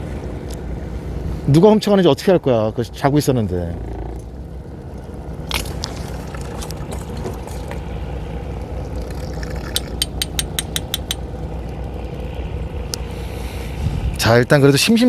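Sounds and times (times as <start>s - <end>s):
boat engine idling: 0.0s - 15.0s
sharp clicks: 9.8s - 11.2s.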